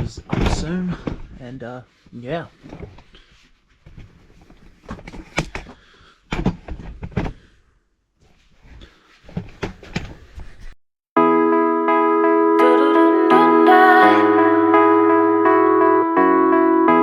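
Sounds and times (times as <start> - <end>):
knocks and bumps of handling: 0.0 - 1.4, 2.6 - 7.5, 8.2 - 10.8.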